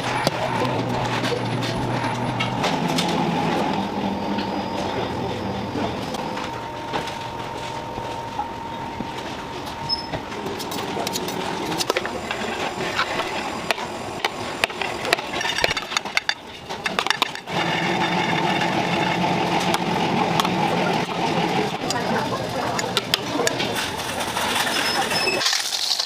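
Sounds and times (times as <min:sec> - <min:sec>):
loud machine hum: 0:00.0 - 0:26.0
machinery running: 0:00.0 - 0:26.0
utensils clicking and knocking: 0:10.5 - 0:26.0.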